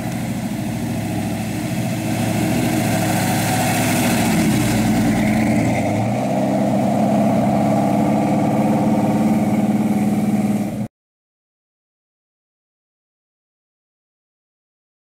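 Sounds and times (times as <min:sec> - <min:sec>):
car engine running at low revs: 0:00.0 - 0:10.9.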